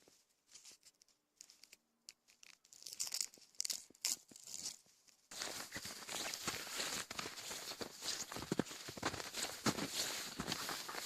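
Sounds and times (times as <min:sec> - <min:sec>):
continuous crunching: 0:00.0 - 0:11.0
bark tearing with dry rips: 0:02.4 - 0:04.8.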